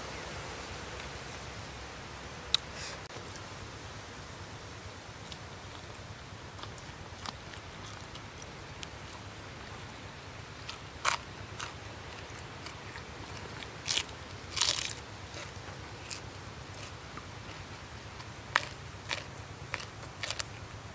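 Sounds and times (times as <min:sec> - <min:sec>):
crunching bites: 0:10.6 - 0:20.6.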